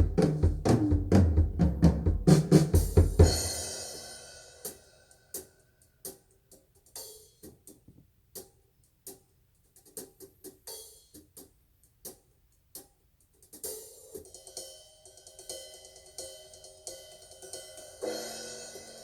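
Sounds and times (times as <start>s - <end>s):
drum hits: 0.0s - 4.0s
cymbals: 2.3s - 5.5s, 14.3s - 19.0s.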